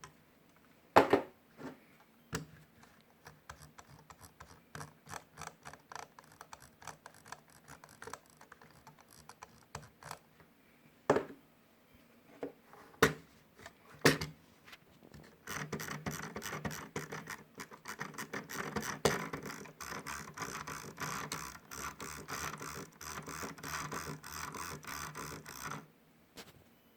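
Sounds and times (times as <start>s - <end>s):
mouse scroll wheel ticking: 2.8s - 10.2s, 15.4s - 25.9s.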